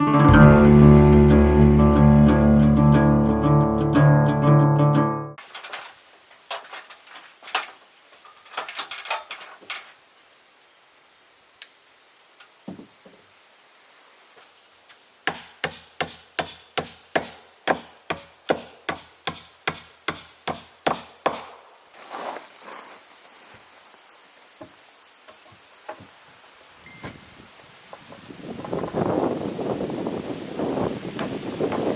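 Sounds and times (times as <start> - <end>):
hand tool striking wood: 15.2 - 21.6.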